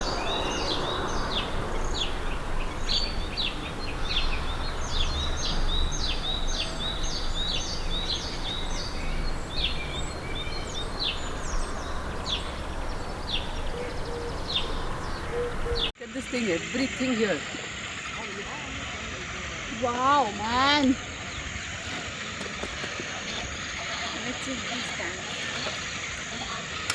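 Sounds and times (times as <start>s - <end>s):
low rumble: 0.0s - 15.9s
small birds chirping chorus: 0.0s - 26.9s.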